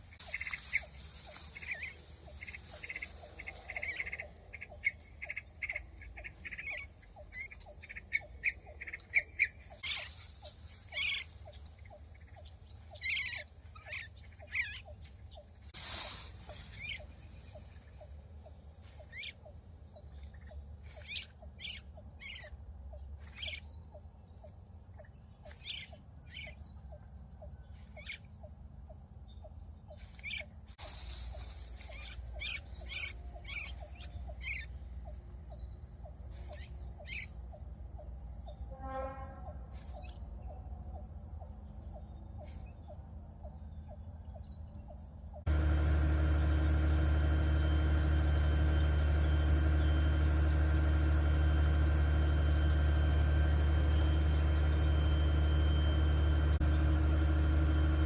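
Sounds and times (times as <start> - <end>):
rustling noise: 0.0 - 4.0, 9.8 - 11.4, 15.6 - 17.6, 30.7 - 32.2
birds chirping: 0.0 - 38.8, 39.4 - 58.0.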